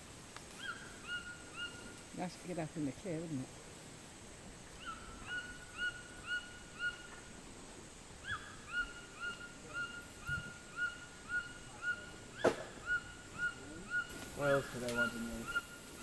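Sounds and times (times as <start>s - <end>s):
bird whistling: 8.2s - 16.0s.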